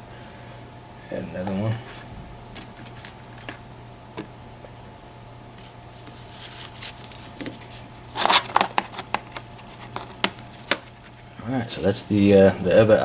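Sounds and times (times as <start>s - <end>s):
metal lock parts clinking: 6.5s - 8.6s.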